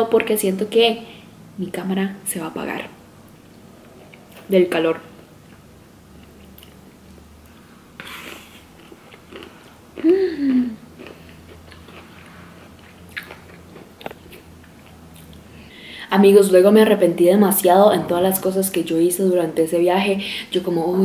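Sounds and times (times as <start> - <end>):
woman chewing and biting food: 6.2 - 15.5
woman humming: 10.0 - 10.8.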